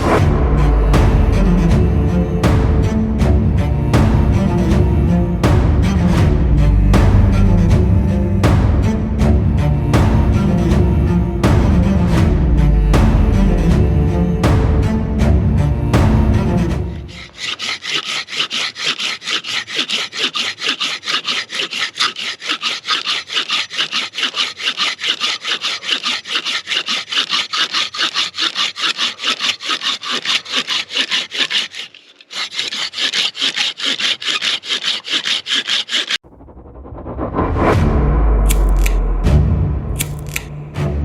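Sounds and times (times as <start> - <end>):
pruning saw cutting wood: 9.6 - 36.2, 38.5 - 39.1, 40.0 - 40.7.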